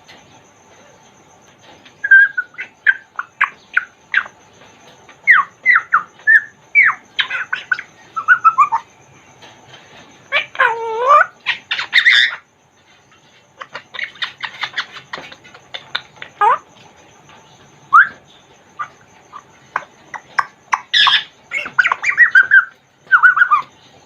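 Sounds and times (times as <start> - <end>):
parrot whistles and chirps: 2.0 - 4.4, 5.2 - 8.9, 10.3 - 12.4, 13.6 - 16.6, 17.9 - 23.7
parrot wavering call: 5.2 - 9.0, 10.3 - 12.5, 13.6 - 16.7, 17.9 - 18.2, 18.8 - 23.7.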